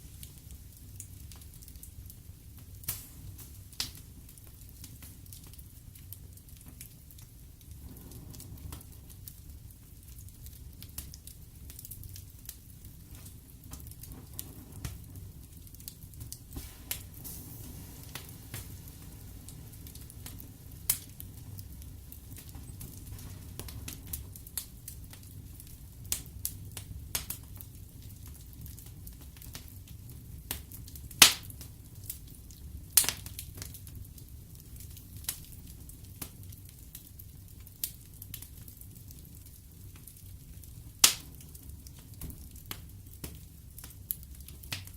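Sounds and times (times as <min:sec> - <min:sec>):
fire crackling and popping: 0:00.0 - 0:44.9
wood fire flames rumbling: 0:00.0 - 0:44.9.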